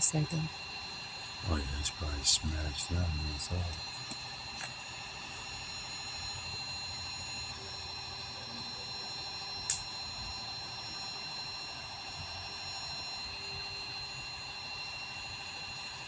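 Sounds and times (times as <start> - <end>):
sharp click: 9.7 - 9.9.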